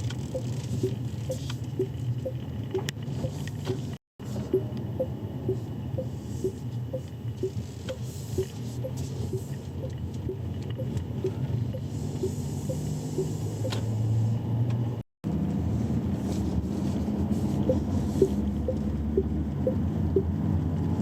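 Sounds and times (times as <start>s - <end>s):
turn signal ticking: 0.0s - 3.9s, 4.5s - 14.0s, 17.6s - 20.4s
car cabin low rumble: 0.0s - 21.0s.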